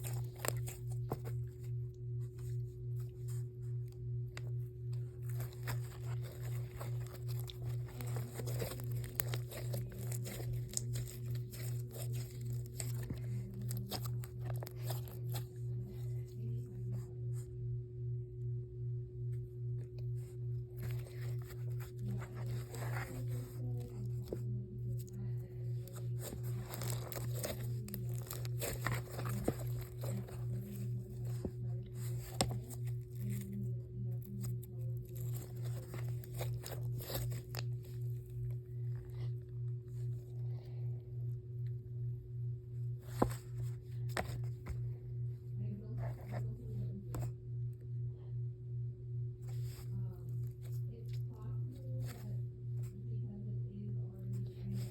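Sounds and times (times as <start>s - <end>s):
pulsing low hum: 0.0s - 54.9s
slime squished by hand: 25.7s - 33.5s.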